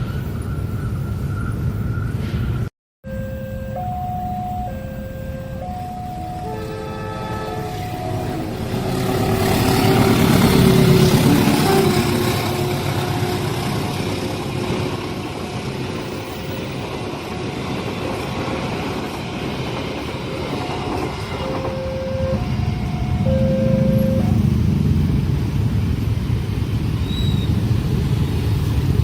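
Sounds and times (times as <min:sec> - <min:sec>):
crossing warning bell tones: 0:03.0 - 0:13.8, 0:20.4 - 0:24.8
train rumbling past: 0:03.4 - 0:29.0.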